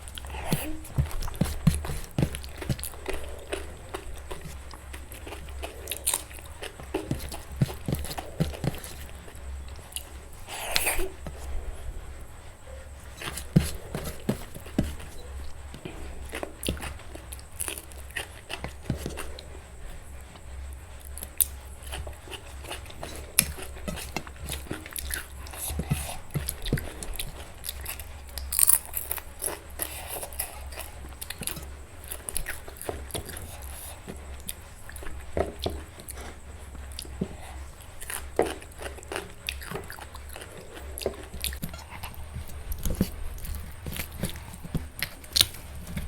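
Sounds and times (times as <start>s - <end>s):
crunching bites: 0.0s - 11.7s, 21.1s - 46.0s
person chewing food: 0.0s - 46.0s.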